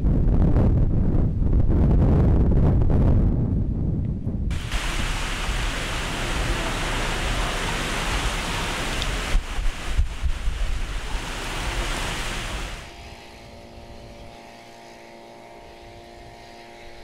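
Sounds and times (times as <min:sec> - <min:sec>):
wind buffeting microphone: 0:00.0 - 0:14.5
heavy rain hiss: 0:04.5 - 0:13.0.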